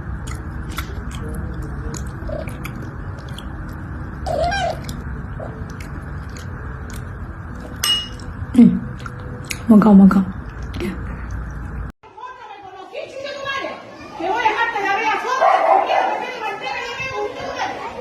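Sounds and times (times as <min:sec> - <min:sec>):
animal chewing crunchily: 0:00.0 - 0:09.7
low background noise: 0:00.0 - 0:18.0.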